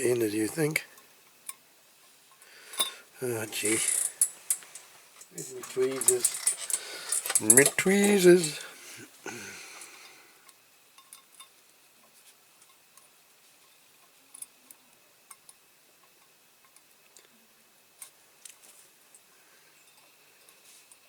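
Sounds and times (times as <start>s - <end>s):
faint metal clicks and taps: 3.8s - 8.7s.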